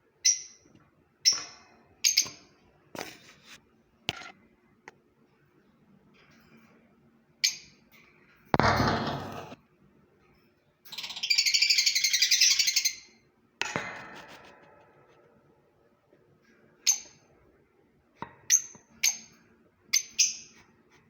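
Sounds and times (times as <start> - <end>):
shrill bird calls: 11.0 - 13.2.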